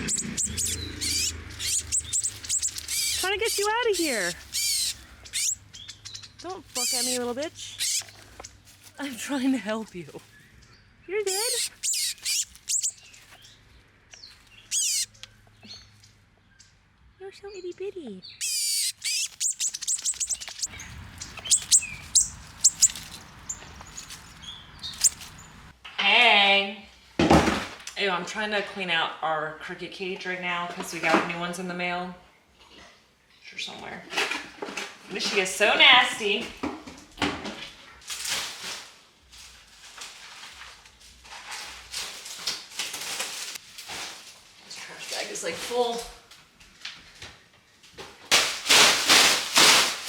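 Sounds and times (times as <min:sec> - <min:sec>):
cage scraping: 0:00.0 - 0:08.8, 0:18.4 - 0:25.7
baby bird chirping: 0:00.0 - 0:10.3, 0:11.1 - 0:13.6, 0:14.2 - 0:15.8, 0:17.4 - 0:25.7
trash bag rustling: 0:48.3 - 0:50.0.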